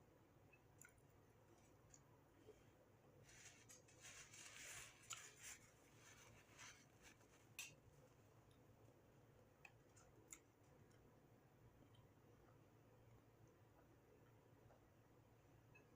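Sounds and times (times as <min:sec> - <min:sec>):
soft rustle: 0:02.6 - 0:08.3.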